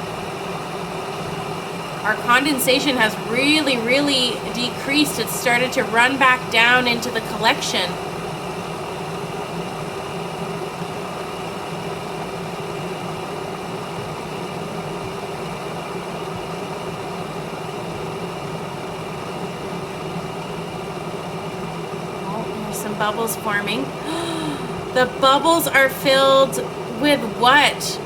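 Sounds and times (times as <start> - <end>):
kettle heating water: 0.0 - 28.0.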